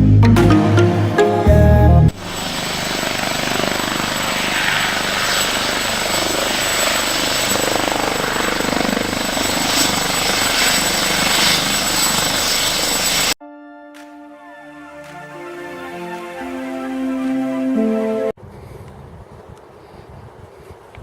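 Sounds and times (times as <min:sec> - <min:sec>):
helicopter rotor and engine: 0:02.2 - 0:13.4.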